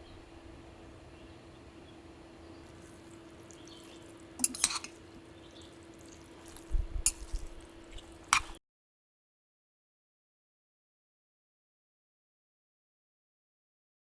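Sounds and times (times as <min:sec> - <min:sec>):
small objects clicking and clinking: 0:02.7 - 0:08.6.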